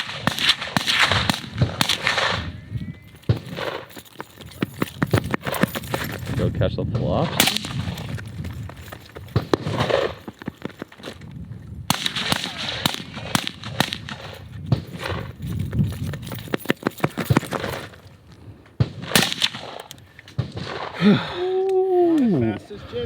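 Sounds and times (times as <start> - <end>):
gunshots: 0.0 - 2.6, 3.2 - 3.9, 7.0 - 8.2, 9.3 - 10.2, 11.9 - 15.3, 18.8 - 21.2.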